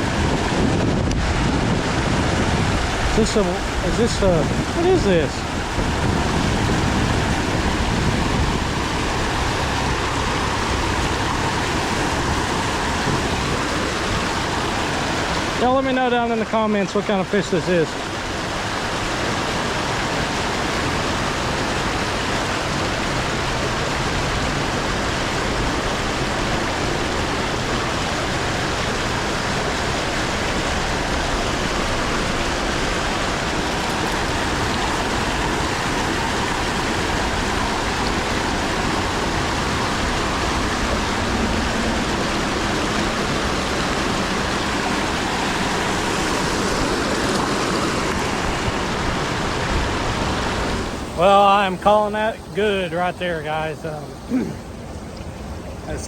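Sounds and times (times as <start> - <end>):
creek water rushing: 0.0 - 56.0.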